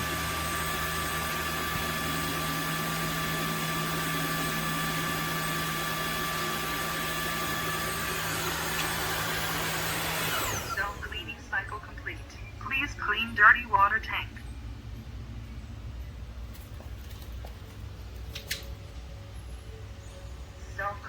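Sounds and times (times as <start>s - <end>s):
vacuum motor whine: 0.0s - 13.4s.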